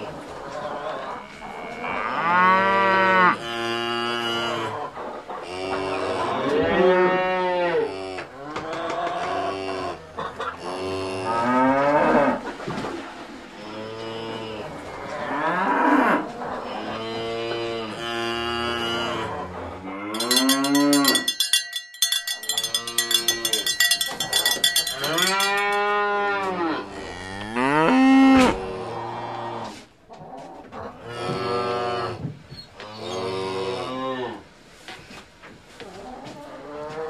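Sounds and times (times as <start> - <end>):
cattle mooing: 15.0 - 21.3, 22.6 - 29.7
fast high ringing: 20.1 - 26.1.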